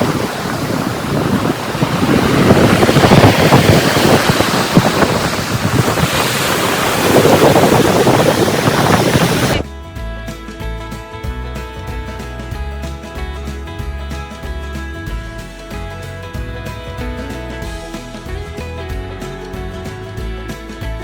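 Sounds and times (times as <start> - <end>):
waves: 0.0 - 9.7, 12.2 - 21.0
wind buffeting microphone: 0.0 - 21.0.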